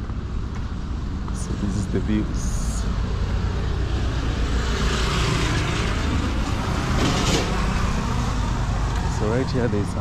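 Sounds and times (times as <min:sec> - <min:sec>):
road traffic rumble: 0:00.0 - 0:10.0
vehicle passing loudly: 0:02.4 - 0:10.0.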